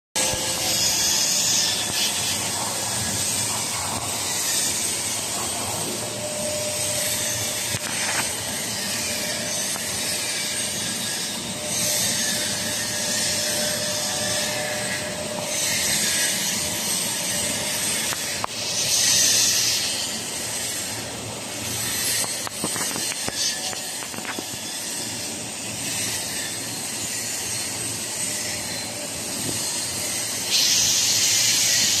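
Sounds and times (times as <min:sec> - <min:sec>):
laser welder hissing: 0:00.2 - 0:32.0.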